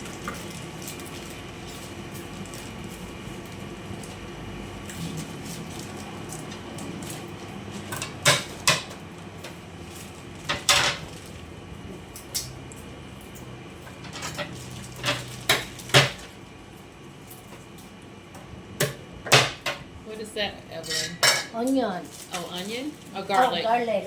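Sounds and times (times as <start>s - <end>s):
utensils and dishes clinking: 4.9s - 11.4s, 12.2s - 16.3s, 20.7s - 23.6s.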